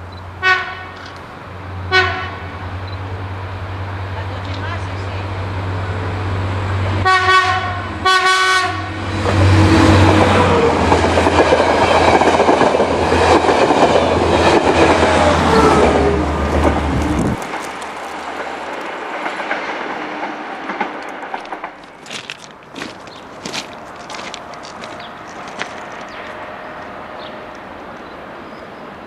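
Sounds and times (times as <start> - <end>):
train passing rumble: 0.0 - 29.0
train horn blasts: 0.4 - 1.0, 1.9 - 2.6, 7.0 - 10.6, 26.0 - 27.6.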